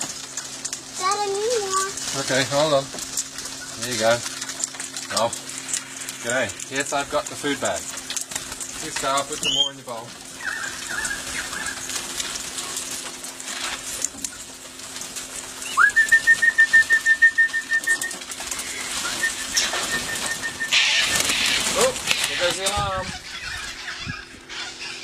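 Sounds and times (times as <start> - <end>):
bird whistled call: 9.4 - 9.8, 15.6 - 21.8.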